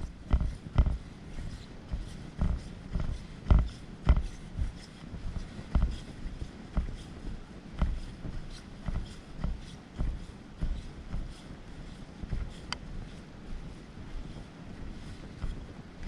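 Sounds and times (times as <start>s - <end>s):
dull thuds and knocks: 0.2s - 1.0s, 1.9s - 4.8s, 5.7s - 6.0s, 7.8s - 8.1s.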